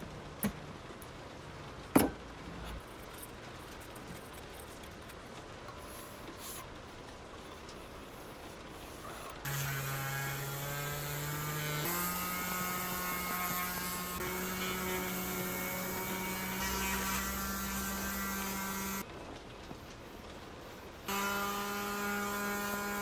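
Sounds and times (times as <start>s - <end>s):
electric power tool motor running: 9.5s - 19.0s, 21.1s - 23.0s.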